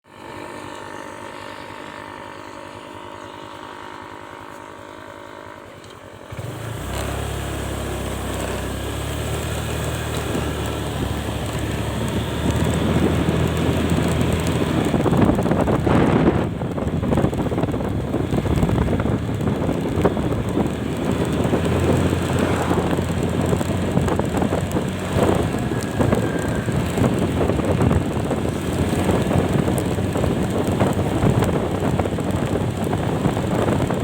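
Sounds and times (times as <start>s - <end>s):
motorcycle riding off: 0.1s - 34.0s
motorcycle engine idling: 0.2s - 34.0s
wind on microphone: 9.6s - 34.0s.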